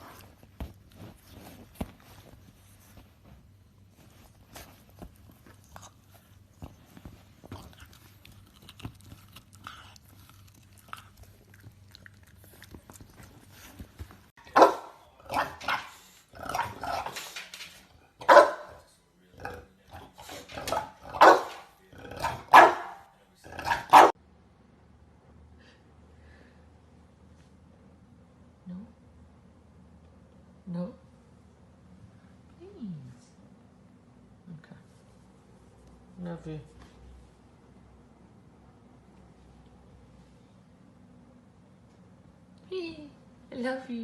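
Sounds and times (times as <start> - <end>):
puppy barking: 14.4 - 16.0, 18.2 - 18.8, 20.7 - 24.2.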